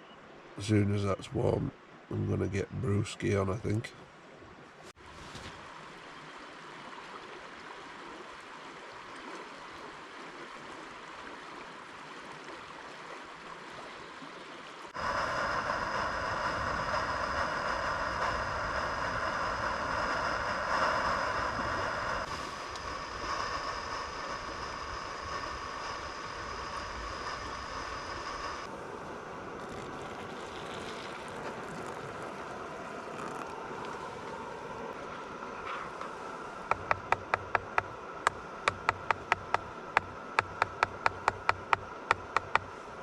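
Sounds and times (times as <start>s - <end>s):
stream rushing: 5.0s - 43.0s
gas stove burner hissing: 15.0s - 29.2s, 35.9s - 43.0s.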